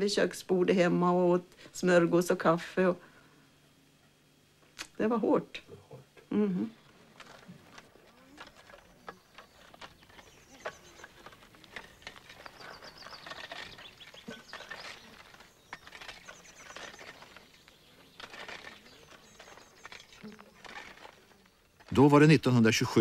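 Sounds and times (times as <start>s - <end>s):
small birds chirping and trilling: 6.7s - 23.0s
light clicks and rustles: 6.9s - 22.3s.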